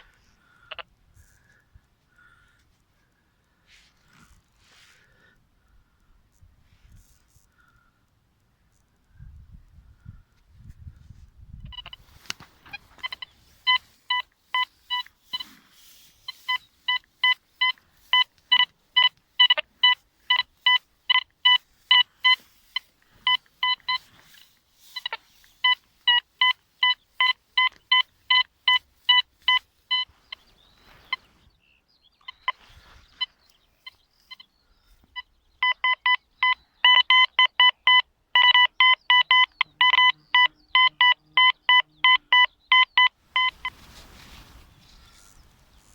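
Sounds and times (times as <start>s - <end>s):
metal detector beeping: 0.0s - 1.6s, 11.6s - 31.4s, 32.2s - 45.9s.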